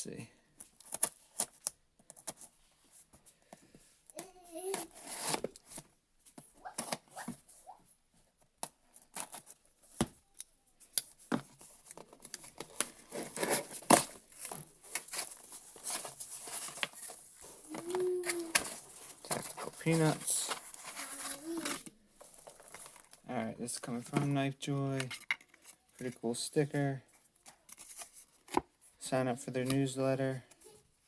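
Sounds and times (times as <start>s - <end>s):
packing tape tearing: 4.7s - 5.6s, 12.3s - 23.0s
cardboard and packing crinkling: 11.4s - 24.3s.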